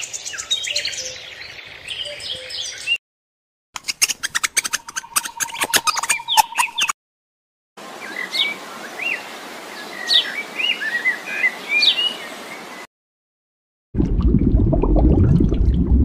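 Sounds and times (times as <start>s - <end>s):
short bird chirps and clicks: 3.8s - 7.0s.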